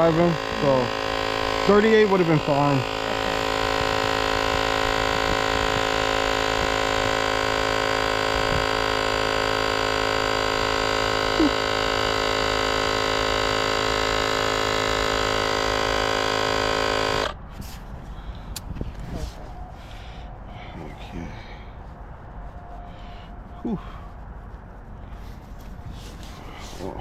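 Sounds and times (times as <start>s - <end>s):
electric tire inflator buzzing: 0.0s - 17.5s.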